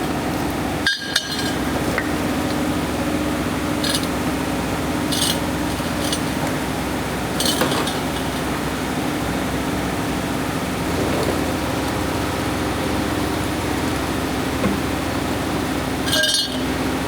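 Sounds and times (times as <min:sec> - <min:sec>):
mechanical hum: 0:00.0 - 0:17.0
metallic clinks of hand tools: 0:05.1 - 0:06.3, 0:16.1 - 0:16.7.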